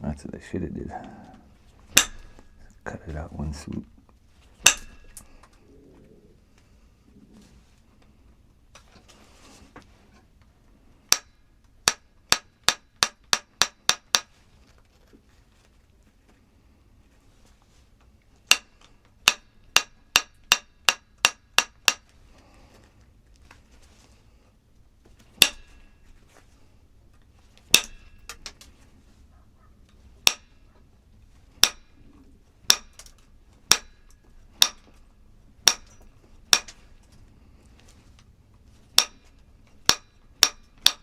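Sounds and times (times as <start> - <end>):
hard objects striking with ringing: 1.9 - 2.8, 4.6 - 5.3, 11.1 - 14.3, 18.5 - 22.0, 25.4 - 26.1, 27.7 - 28.5, 30.2 - 30.6, 31.6 - 33.1, 33.7 - 35.0, 35.6 - 36.9, 39.0 - 41.0.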